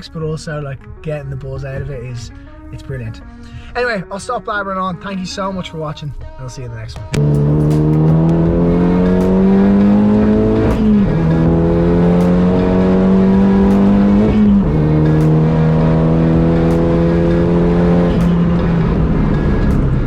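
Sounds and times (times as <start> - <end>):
car engine accelerating: 7.1 - 20.0.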